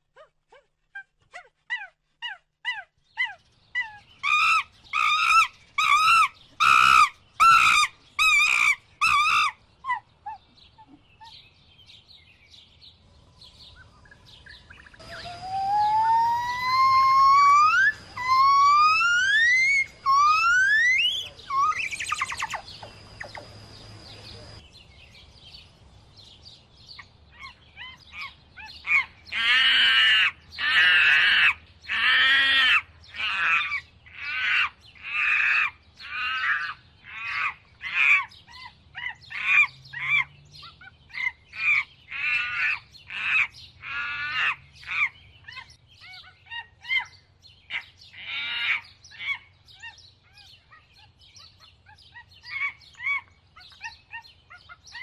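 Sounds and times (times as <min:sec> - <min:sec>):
small bird chirps: 0:00.9 - 0:29.5, 0:36.0 - 0:55.0
bird calling repeatedly: 0:14.4 - 0:24.6.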